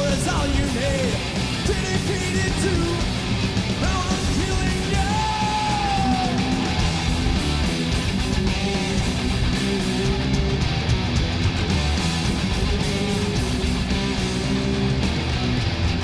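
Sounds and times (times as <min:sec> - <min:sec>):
live heavy metal music: 0:00.0 - 0:16.0
person yelling: 0:03.8 - 0:06.8.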